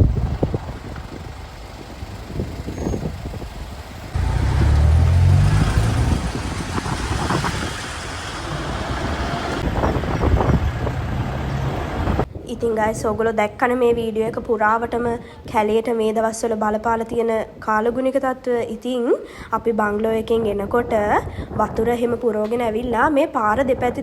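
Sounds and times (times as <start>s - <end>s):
vehicle engine rumble: 0.0s - 12.3s.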